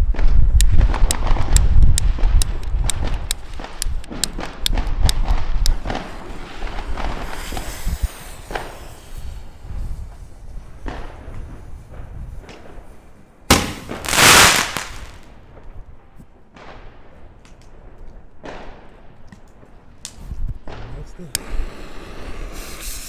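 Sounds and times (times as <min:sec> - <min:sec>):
firecracker bangs: 0:13.5 - 0:15.3.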